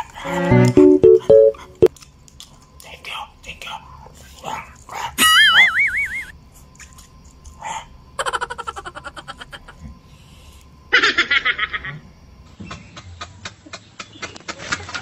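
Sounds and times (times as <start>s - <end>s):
high-pitched stuttering laughter: 8.2s - 9.8s.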